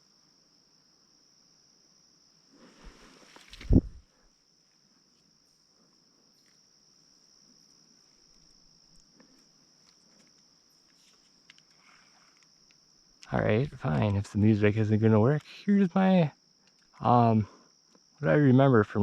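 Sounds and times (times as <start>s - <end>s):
crickets chirping: 0.0s - 19.0s
faint clicks: 8.3s - 13.4s.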